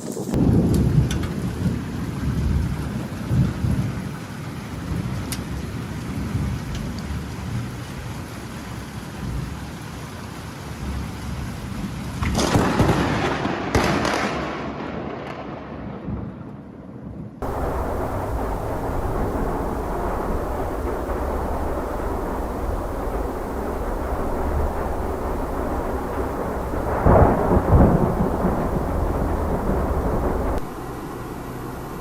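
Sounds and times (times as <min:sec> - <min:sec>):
loud close thunderclap: 0:00.0 - 0:04.1, 0:11.8 - 0:30.8
rain falling: 0:00.0 - 0:16.6, 0:17.4 - 0:32.0
steady noise: 0:17.4 - 0:32.0.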